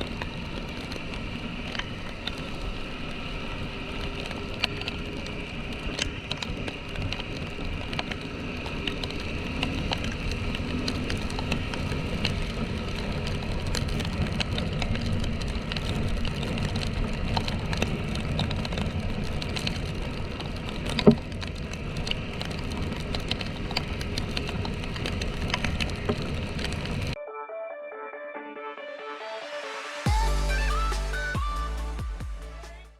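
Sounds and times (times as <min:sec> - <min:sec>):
rain hiss: 0:00.0 - 0:27.2, 0:29.2 - 0:32.9.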